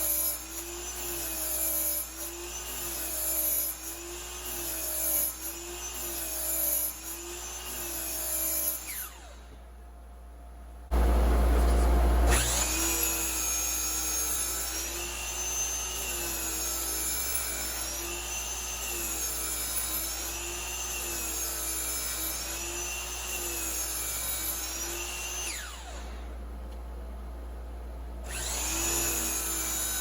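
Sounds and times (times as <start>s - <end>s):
miter saw motor whine: 7.3s - 9.6s, 12.3s - 19.3s, 24.7s - 26.3s, 28.2s - 30.0s
dust collector hum: 10.9s - 13.9s.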